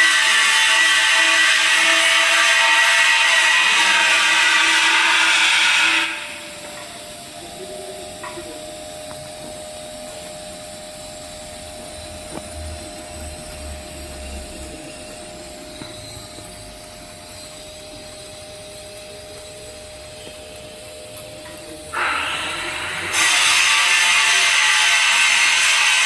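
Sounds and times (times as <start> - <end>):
welding arc hissing: 0.0 - 26.0.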